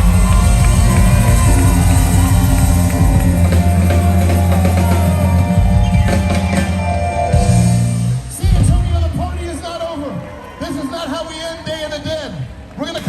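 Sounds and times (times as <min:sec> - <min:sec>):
drum kit: 0:00.0 - 0:09.6
heavy bass: 0:00.0 - 0:09.6
live band music: 0:00.0 - 0:09.6.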